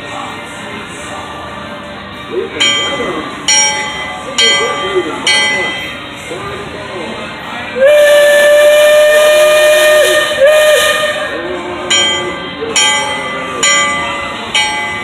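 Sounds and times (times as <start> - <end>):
bell ringing: 2.6 - 6.2, 11.8 - 15.0
steam whistle blasts: 7.8 - 12.3.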